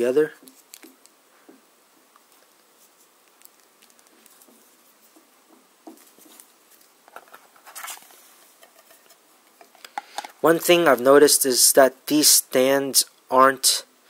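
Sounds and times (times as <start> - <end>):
plastic scrape: 7.1 - 10.4.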